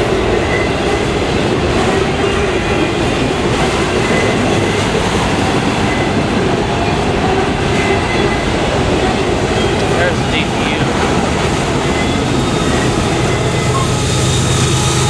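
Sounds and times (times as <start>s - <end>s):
freight train wheels rumbling: 0.0s - 15.0s
faint high wheel squeal: 11.5s - 15.0s.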